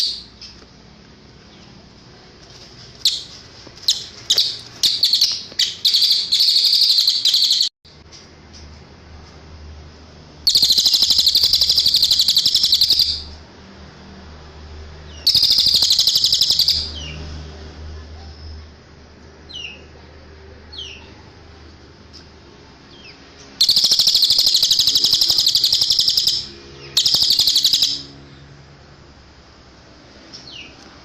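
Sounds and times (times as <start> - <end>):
songbird chips and trills: 3.0 - 7.7, 23.4 - 28.1.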